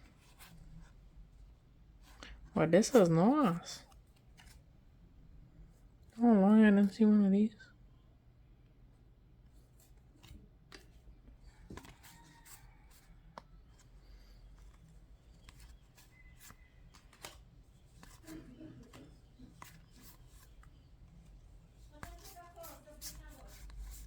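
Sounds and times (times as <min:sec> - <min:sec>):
low room hum: 0:00.0 - 0:24.0
trading cards clicking and rustling: 0:11.6 - 0:24.0.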